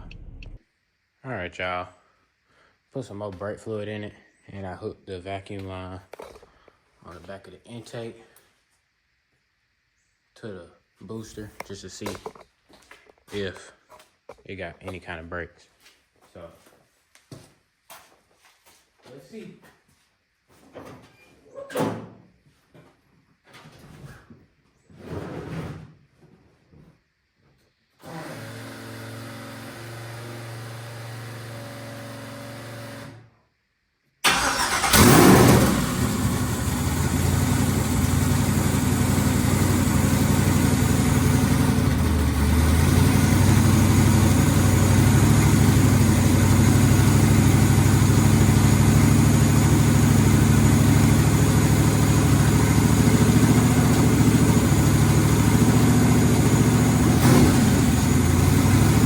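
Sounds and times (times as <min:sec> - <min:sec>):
car engine starting and idling: 0:00.0 - 0:00.6, 0:34.2 - 0:59.0
steady hum: 0:00.0 - 0:00.7.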